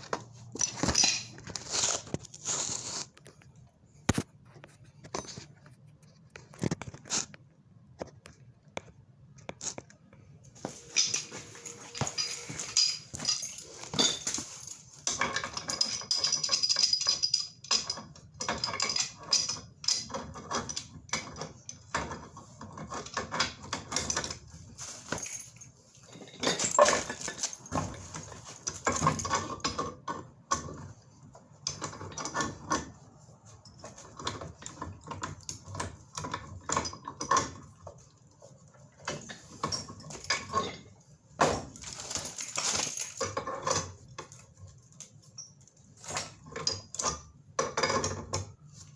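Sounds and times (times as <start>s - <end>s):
metal pipe fittings clinking: 0.2s - 2.2s, 10.6s - 21.4s, 22.8s - 29.8s.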